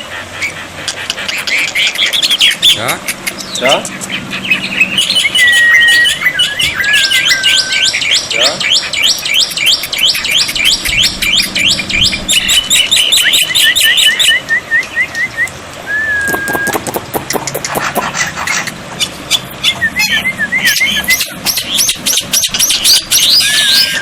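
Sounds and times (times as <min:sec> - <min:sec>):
birdsong whistles and trills: 0:00.0 - 0:24.0.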